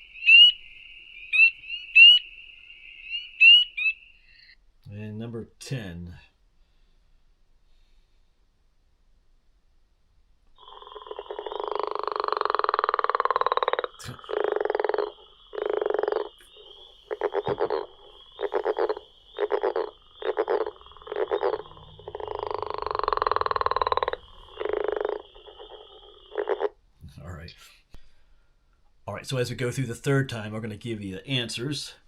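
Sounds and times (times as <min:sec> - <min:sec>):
frog croaking: 0:00.0 - 0:04.6, 0:10.6 - 0:27.5.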